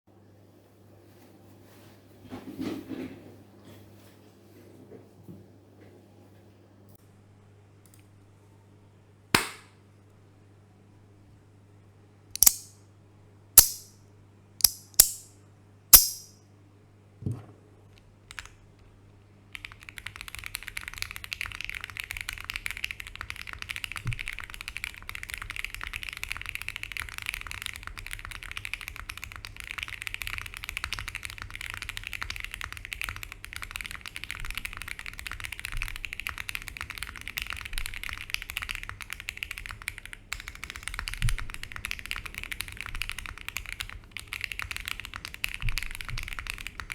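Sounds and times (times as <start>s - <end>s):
mechanical keyboard clacks: 12.4s - 12.7s, 19.6s - 46.9s
fast typing on keyboard: 18.3s - 18.7s, 19.5s - 46.9s.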